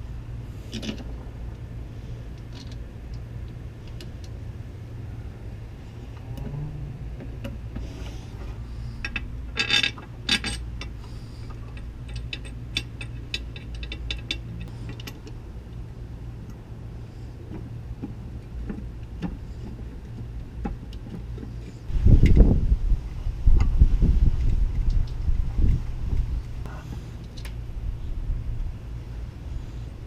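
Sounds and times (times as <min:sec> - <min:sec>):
steady low hum: 0:00.0 - 0:30.0
metal tools clinking: 0:09.0 - 0:10.9.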